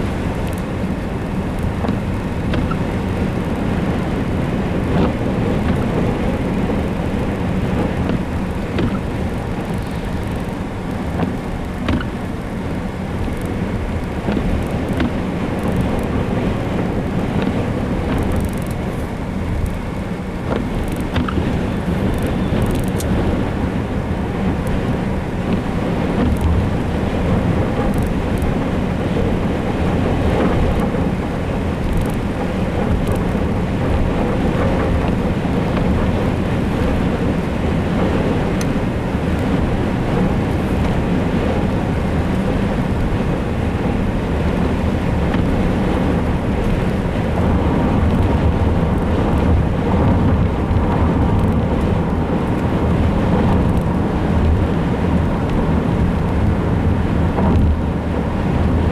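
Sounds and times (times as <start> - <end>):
rain: 0.0 - 58.9
wind rumbling: 0.0 - 58.9.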